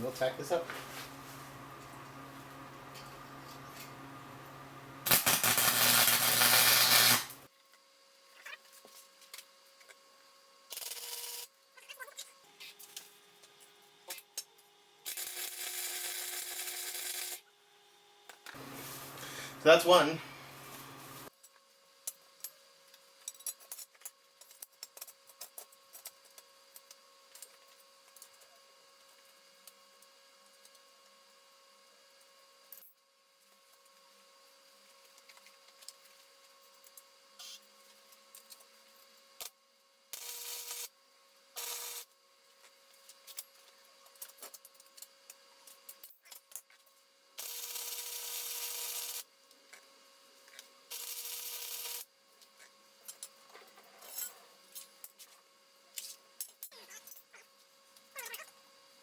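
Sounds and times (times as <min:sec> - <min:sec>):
welder crackling hiss: 0:05.0 - 0:07.5, 0:18.6 - 0:21.3.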